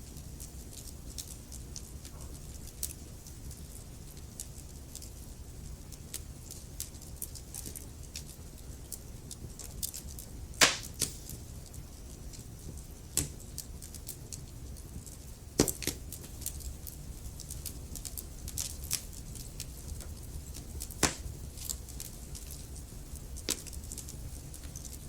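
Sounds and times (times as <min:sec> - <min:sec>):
logs crackling in a fireplace: 0:00.0 - 0:25.0
loud fire pops: 0:09.5 - 0:11.4, 0:15.5 - 0:22.6, 0:23.4 - 0:24.8.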